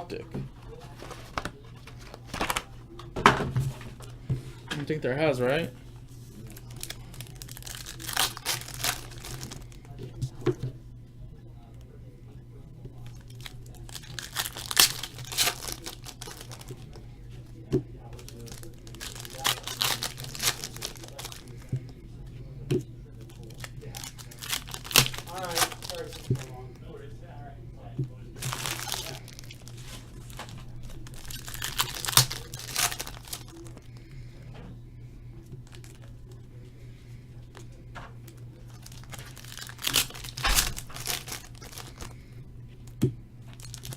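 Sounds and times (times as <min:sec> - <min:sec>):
card pack wrappers tearing: 0:01.0 - 0:02.7, 0:06.4 - 0:10.0, 0:13.0 - 0:17.0, 0:18.2 - 0:21.7, 0:23.2 - 0:26.6, 0:28.4 - 0:33.9, 0:35.6 - 0:36.1, 0:38.6 - 0:42.2, 0:43.5 - 0:43.9.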